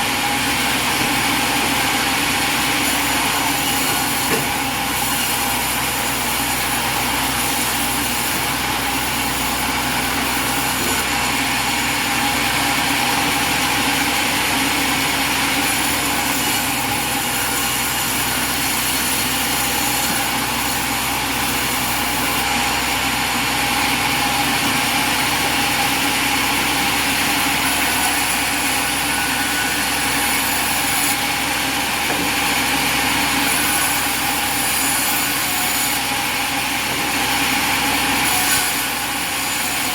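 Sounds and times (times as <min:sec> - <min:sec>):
small engine running steadily: 0:00.0 - 0:39.9.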